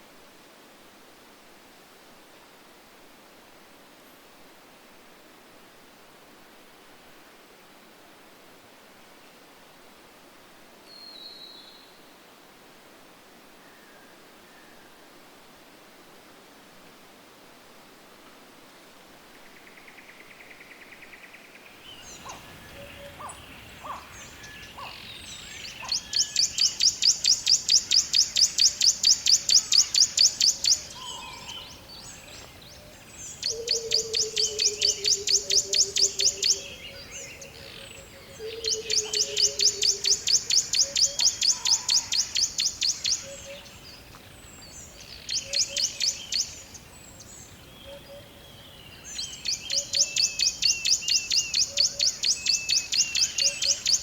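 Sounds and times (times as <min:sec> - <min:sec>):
faint bird chirps: 0:19.4 - 0:54.0.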